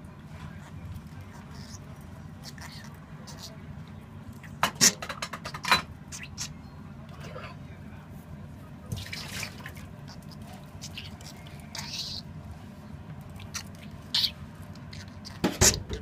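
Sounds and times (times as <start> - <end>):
budgerigar chattering: 1.3 - 3.6, 5.5 - 6.6, 9.1 - 12.3, 13.4 - 15.8.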